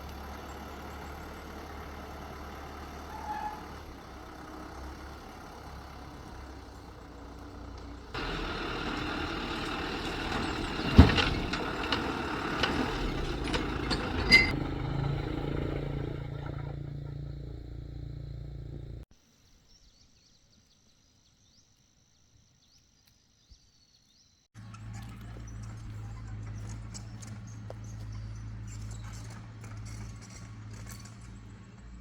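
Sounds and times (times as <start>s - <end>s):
vehicle engine running: 0.0s - 19.1s, 24.6s - 32.0s
sharp clanks and knocks: 7.5s - 17.5s.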